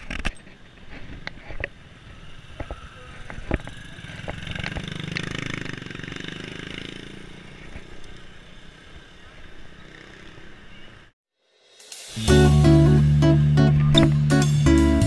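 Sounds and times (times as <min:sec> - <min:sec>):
bicycle clicks and knocks on road: 0:00.0 - 0:06.1
motorcycle engine passing: 0:01.9 - 0:10.8.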